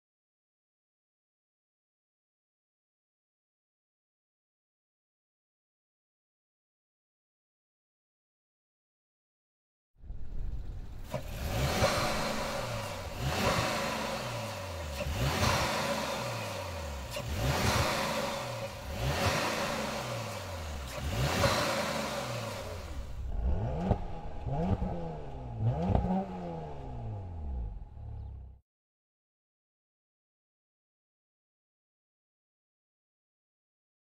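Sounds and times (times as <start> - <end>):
car engine revving: 10.0 - 28.6.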